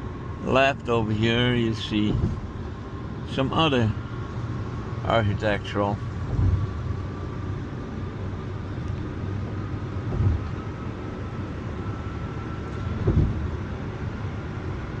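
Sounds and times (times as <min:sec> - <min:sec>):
car road noise rumble: 0:00.0 - 0:15.0
low thumps: 0:06.2 - 0:06.8, 0:10.0 - 0:10.6.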